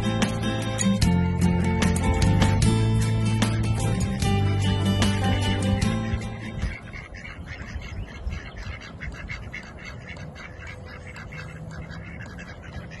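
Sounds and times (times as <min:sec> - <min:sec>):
ducklings peeping: 0:04.1 - 0:13.0.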